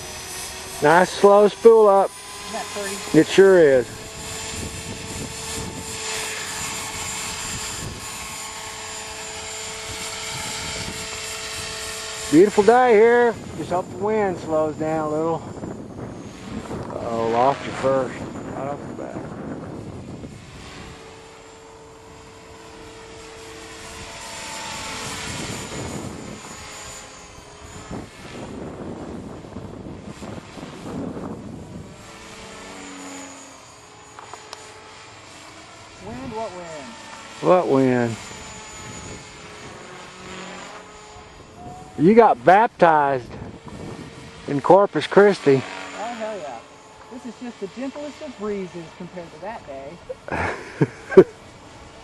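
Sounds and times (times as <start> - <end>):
rc helicopter motor whine: 0.0 - 52.0
wind buffeting microphone: 2.4 - 21.3, 22.2 - 32.8, 37.7 - 44.9.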